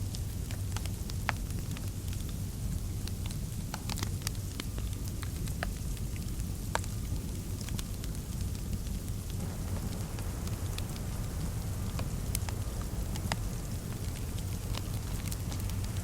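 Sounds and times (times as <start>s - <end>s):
wood fire popping: 0.1s - 16.0s
steady low rumble: 7.1s - 16.0s.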